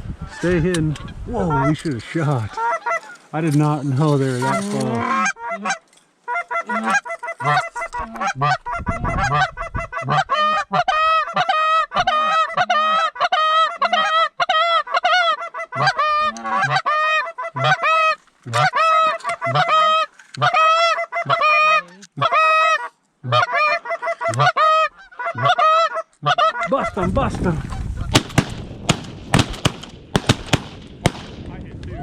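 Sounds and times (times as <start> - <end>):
goose honking: 0.2 - 1.9, 2.5 - 3.3, 4.2 - 27.0.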